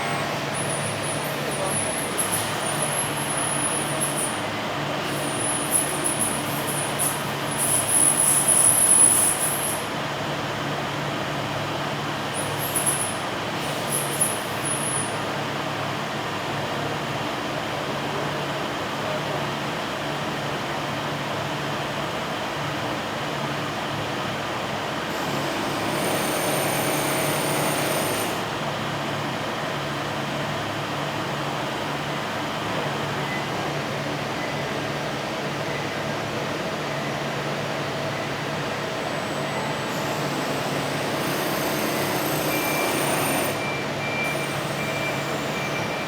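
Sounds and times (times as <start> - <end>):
high-pitched machine whine: 0.0 - 10.0, 12.4 - 15.3, 37.9 - 46.0
machine hum and hiss: 12.1 - 15.7, 23.8 - 46.0.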